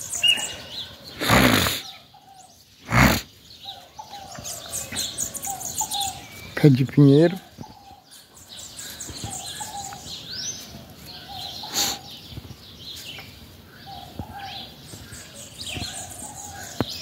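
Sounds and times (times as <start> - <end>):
outdoor background noise: 0.0 - 17.0
small birds chirping: 0.0 - 17.0
burst of noise: 1.2 - 1.9.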